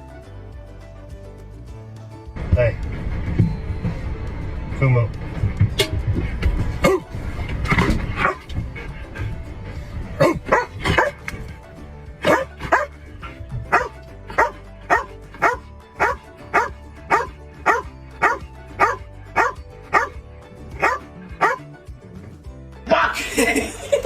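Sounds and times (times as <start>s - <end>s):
dog barking: 6.8s - 7.1s, 8.2s - 8.5s, 10.2s - 11.3s, 12.2s - 20.2s, 20.8s - 21.6s.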